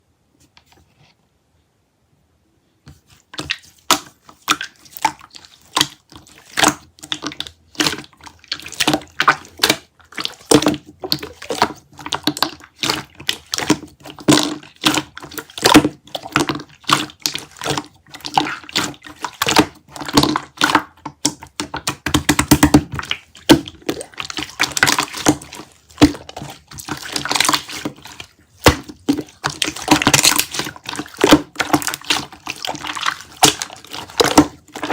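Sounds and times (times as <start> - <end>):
slime squishing with wet pops: 2.9 - 34.9.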